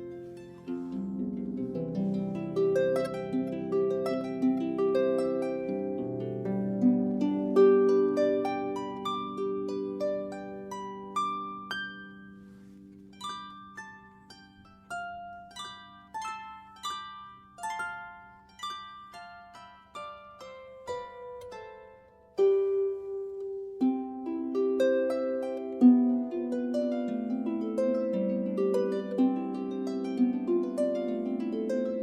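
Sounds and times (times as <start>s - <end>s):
solo harp melody: 0.0s - 32.0s.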